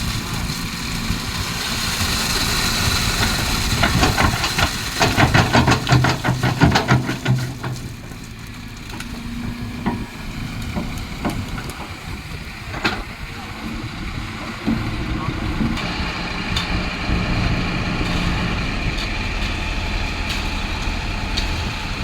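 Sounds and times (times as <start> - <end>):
excavator diesel engine running: 0.0 - 22.0
rapid clanking knocks: 3.7 - 8.2.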